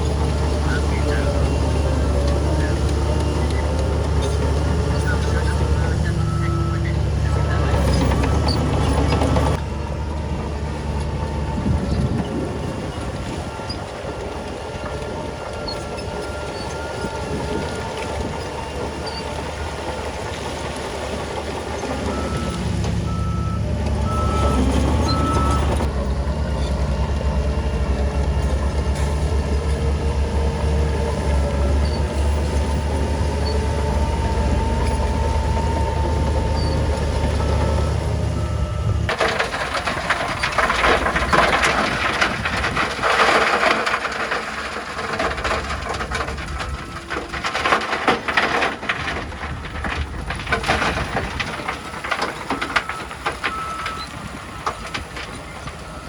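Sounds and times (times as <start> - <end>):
heavy diesel machinery running: 0.0 - 56.0
reversing alarm beeping: 4.9 - 9.5, 22.1 - 25.9.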